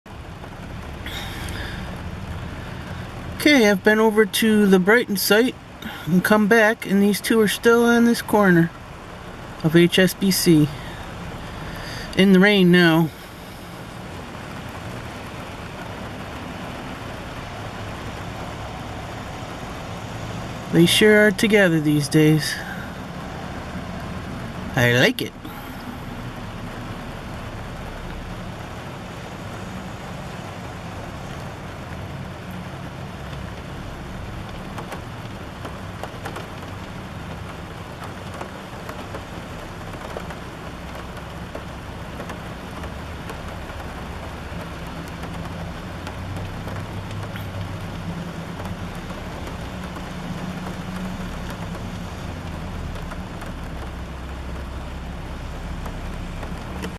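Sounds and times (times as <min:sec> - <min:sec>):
steady rain: 0:00.0 - 0:56.9
traffic rumble: 0:00.1 - 0:56.9.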